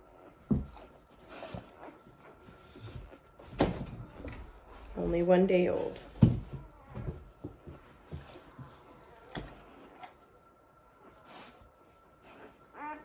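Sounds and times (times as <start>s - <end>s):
faint taps and rustles: 0.2s - 10.3s.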